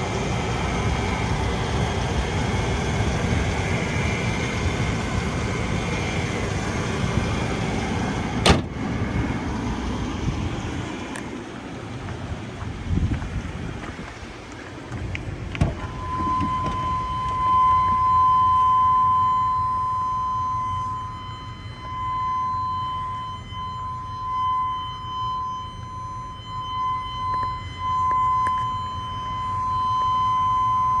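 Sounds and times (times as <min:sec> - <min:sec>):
low rumble: 0:15.0 - 0:19.6
high electronic tone: 0:15.8 - 0:20.2.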